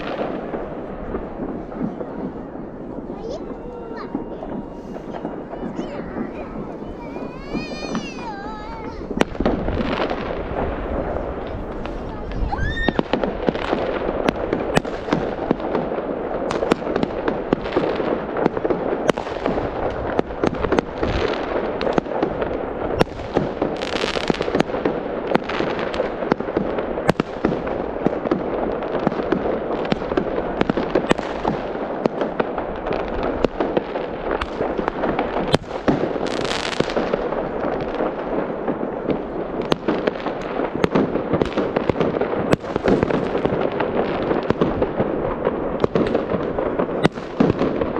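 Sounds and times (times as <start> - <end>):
fireworks hissing: 0.0 - 15.8
fireworks bangs and crackling: 0.0 - 47.9.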